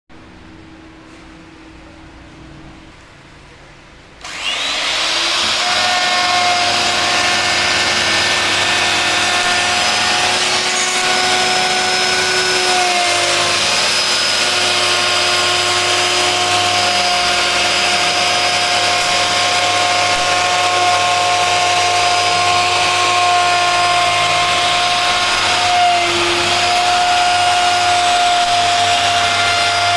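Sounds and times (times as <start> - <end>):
power tool motor whining: 4.2 - 29.9.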